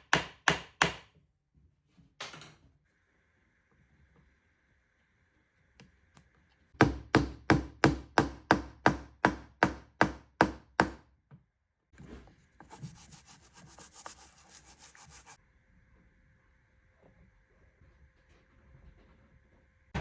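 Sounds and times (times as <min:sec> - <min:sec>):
mallet striking wooden wedge: 0:06.8 - 0:11.0
rasping scrape on wood: 0:12.6 - 0:15.4.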